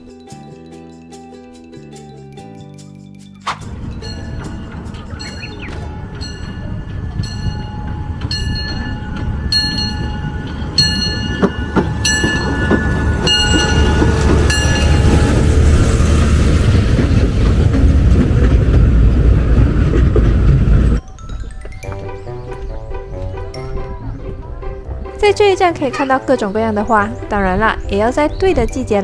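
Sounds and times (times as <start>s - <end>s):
bell-like dings: 3.2s - 15.4s
small train rumbling on track: 3.4s - 29.0s.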